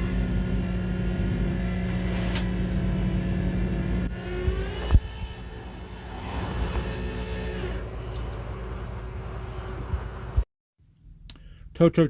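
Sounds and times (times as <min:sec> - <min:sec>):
vehicle engine humming: 0:00.0 - 0:10.4.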